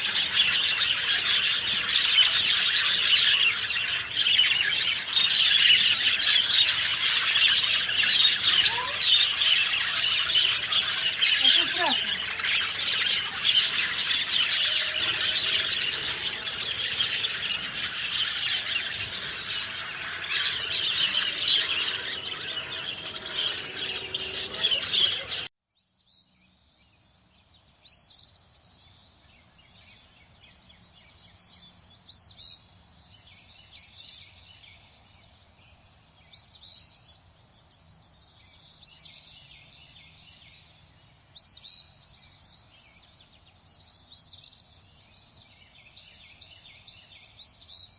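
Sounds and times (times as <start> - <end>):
bird short high calls: 0.0 - 25.5
chorus of birds chirping: 0.0 - 25.5.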